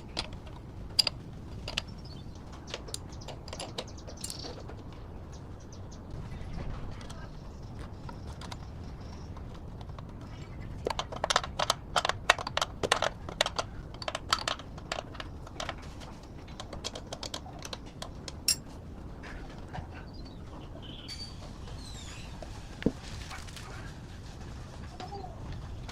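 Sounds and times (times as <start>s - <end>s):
low steady rumble: 0.0s - 25.9s
sharp clicks and taps: 7.8s - 18.6s.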